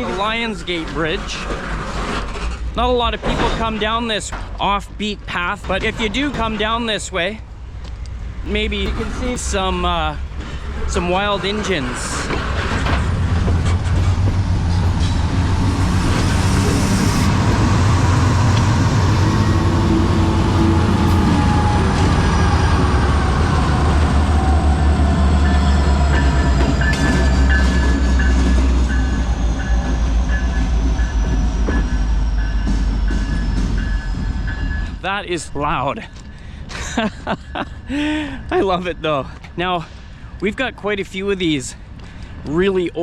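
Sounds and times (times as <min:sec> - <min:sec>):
freight train rumbling: 0:00.0 - 0:43.0
high wheel squealing: 0:08.6 - 0:35.0.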